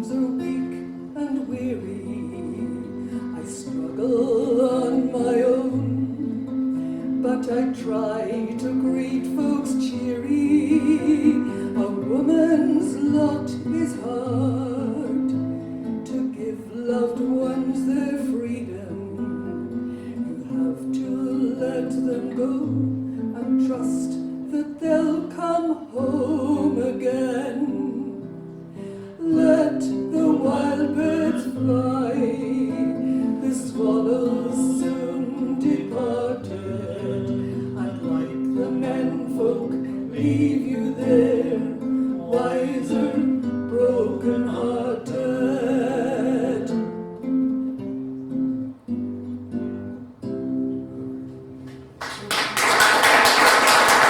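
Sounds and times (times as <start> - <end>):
woman singing folk song: 0.0 - 48.8
acoustic guitar: 0.0 - 54.0
audience applause: 51.8 - 54.0.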